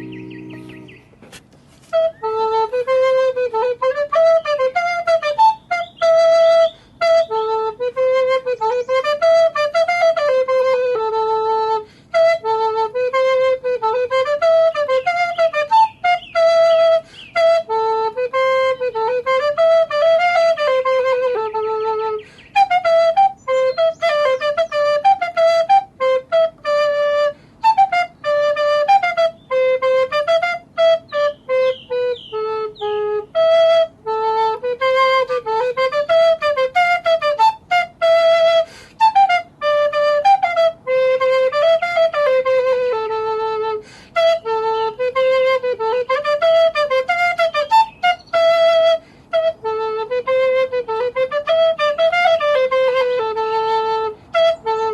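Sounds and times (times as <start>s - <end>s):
solo flute melody: 0.0s - 54.9s.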